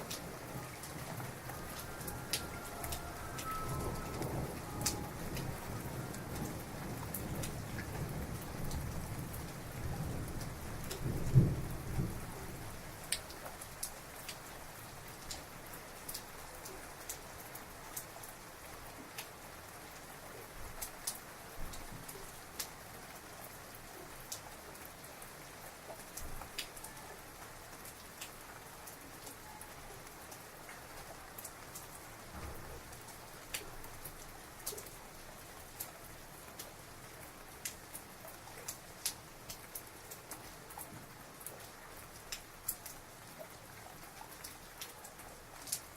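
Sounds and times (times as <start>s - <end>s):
thunder rumble: 0.0s - 12.4s
rain falling: 0.0s - 45.9s
raindrops ticking on a surface: 0.0s - 45.9s.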